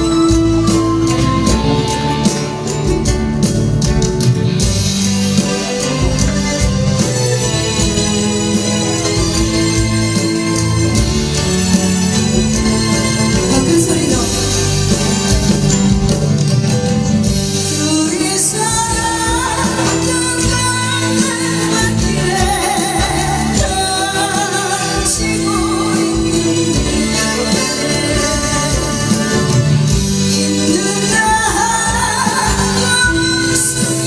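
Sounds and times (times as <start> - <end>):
instrumental accompaniment: 0.0 - 34.0
woman singing ballad: 12.6 - 15.6, 17.5 - 34.0.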